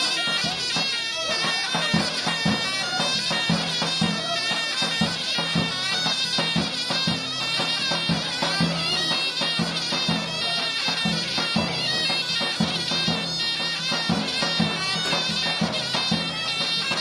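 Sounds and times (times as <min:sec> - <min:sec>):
shrill double-reed pipe melody: 0:00.0 - 0:17.0.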